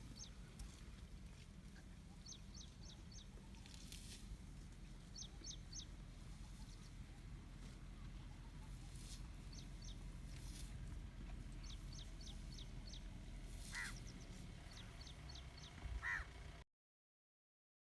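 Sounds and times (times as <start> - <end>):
birds chirping: 0.0 - 0.6, 1.7 - 3.8, 5.0 - 7.2, 8.3 - 10.4, 11.4 - 16.4
low steady rumble: 0.0 - 16.6
falling bird calls: 11.6 - 16.4.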